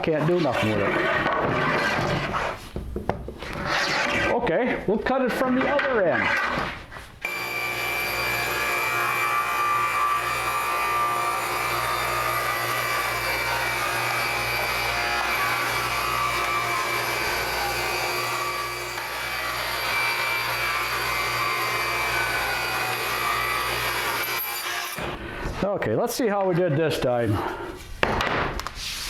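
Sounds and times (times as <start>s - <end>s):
power saw cutting wood: 5.4s - 25.2s.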